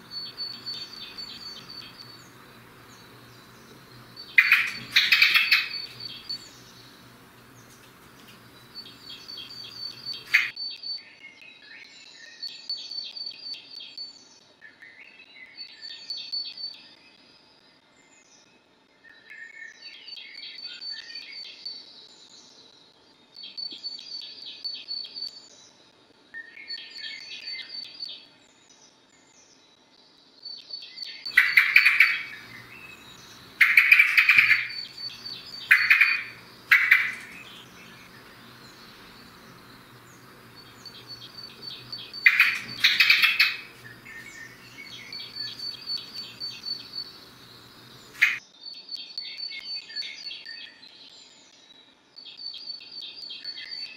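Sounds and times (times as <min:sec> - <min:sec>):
songbird trilling phrase: 0:00.0 - 0:07.8, 0:08.4 - 0:10.5, 0:31.3 - 0:48.4
bird harsh calls: 0:00.0 - 0:10.6, 0:31.3 - 0:48.4.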